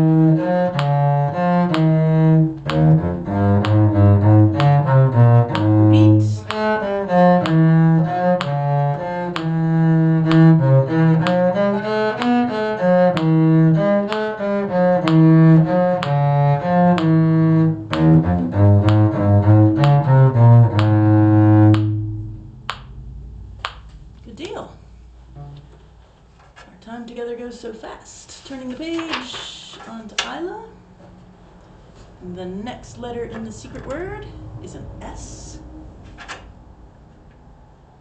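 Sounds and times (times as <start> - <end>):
bowed string instruments playing: 0.0 - 24.2
low bass line: 0.0 - 25.9.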